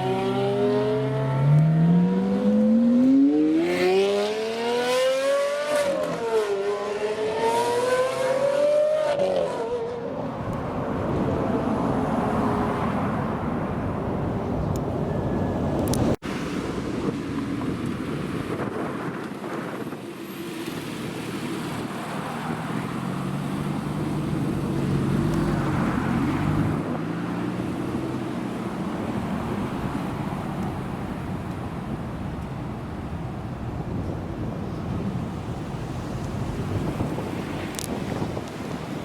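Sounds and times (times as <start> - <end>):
road noise: 0.0 - 39.0
wind on microphone: 9.6 - 39.0.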